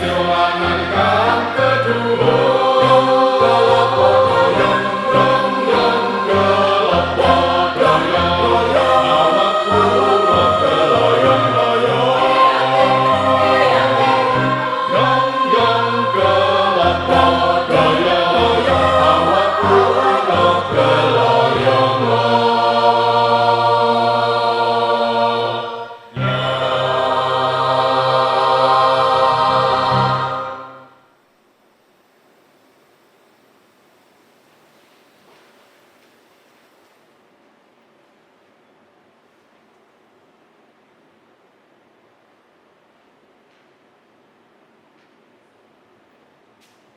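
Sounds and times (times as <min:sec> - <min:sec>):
choir singing in harmony: 0:00.0 - 0:31.0.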